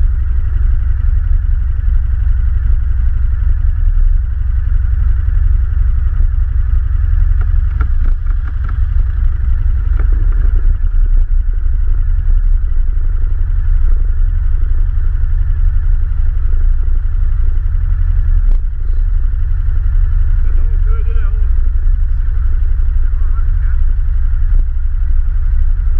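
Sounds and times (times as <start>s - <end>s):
atv engine rumbling: 0.0s - 25.9s
knocks and rattles: 7.3s - 10.8s.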